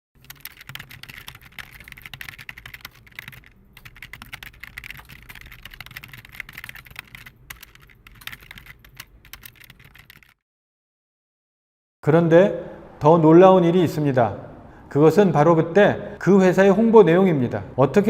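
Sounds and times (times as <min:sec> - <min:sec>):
rapid keyboard typing: 0:00.2 - 0:10.4.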